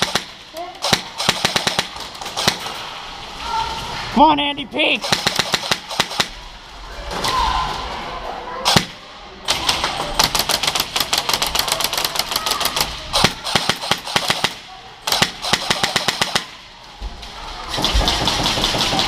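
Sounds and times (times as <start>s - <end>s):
airsoft guns firing full-auto: 0.0s - 2.8s, 5.0s - 6.4s, 8.6s - 16.6s, 17.7s - 19.0s.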